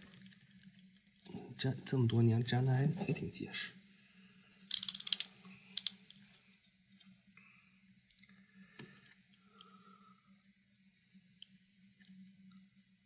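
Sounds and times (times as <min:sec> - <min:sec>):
faint ticks and scratches: 0:00.0 - 0:03.2, 0:10.7 - 0:13.0
low steady hum: 0:00.0 - 0:13.0.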